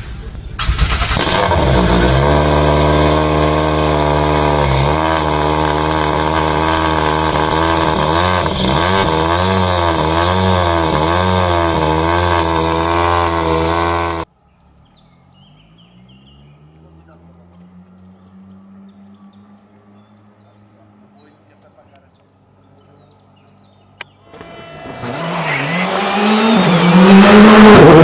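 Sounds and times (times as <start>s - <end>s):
car engine revving: 0.7s - 14.3s, 24.0s - 28.0s.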